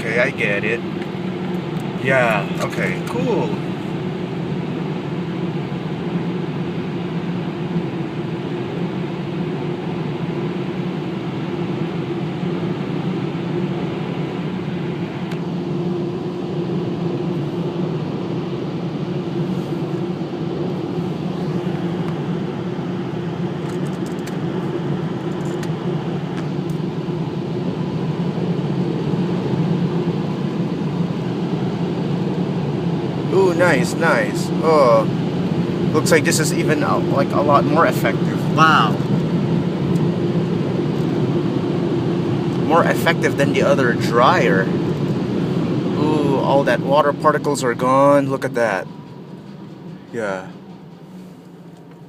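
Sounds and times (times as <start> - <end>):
car wash air blowers: 14.6 - 52.0.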